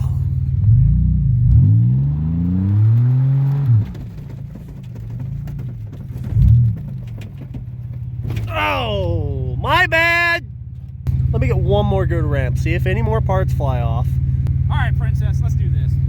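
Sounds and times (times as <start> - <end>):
engine revving without exhaust: 0.0 - 4.0.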